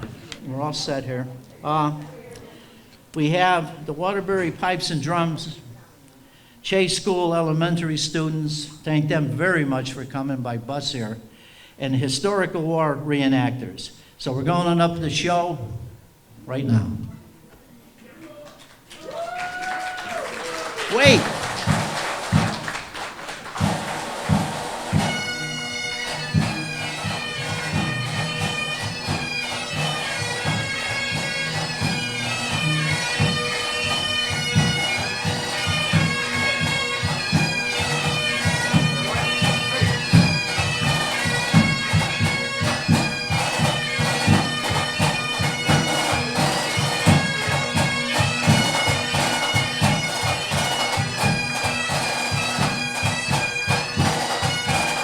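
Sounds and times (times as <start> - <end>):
drums beating: 19.0 - 55.0
bagpipes playing: 20.6 - 55.0.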